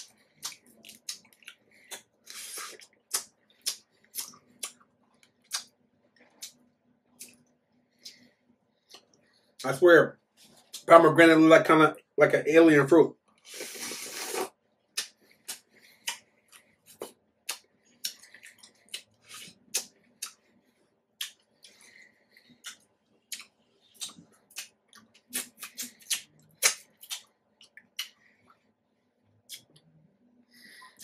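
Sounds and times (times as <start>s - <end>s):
chewing crunches: 0.0s - 6.6s, 14.2s - 20.4s, 21.2s - 28.2s
wet mouth clicks: 0.0s - 6.6s, 13.5s - 20.4s, 21.2s - 21.8s, 22.5s - 28.2s, 29.5s - 29.9s.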